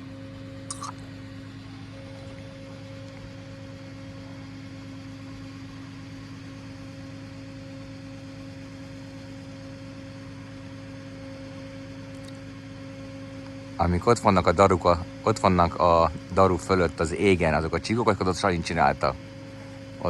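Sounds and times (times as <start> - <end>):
truck engine running: 12.1 - 20.0.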